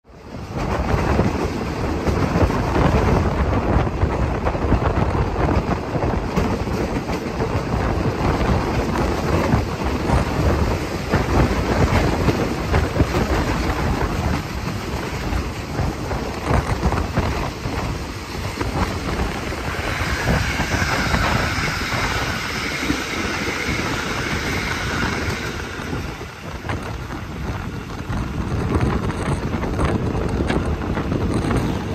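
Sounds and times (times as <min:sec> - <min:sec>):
train wheels rumbling on rail: 0:00.0 - 0:31.9
wind rushing past: 0:00.2 - 0:31.9
clattering over the track: 0:00.4 - 0:31.9.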